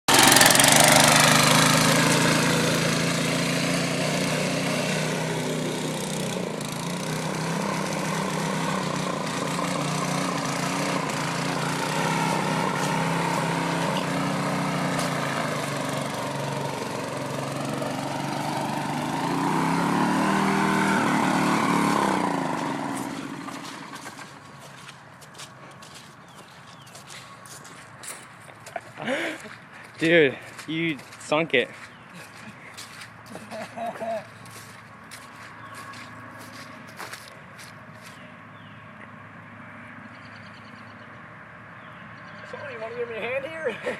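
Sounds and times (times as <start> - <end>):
go-kart engine running: 0.1 - 26.7.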